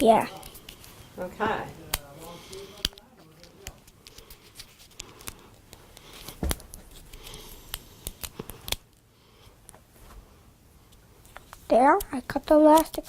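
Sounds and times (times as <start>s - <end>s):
scissors snipping: 12.7s - 13.0s.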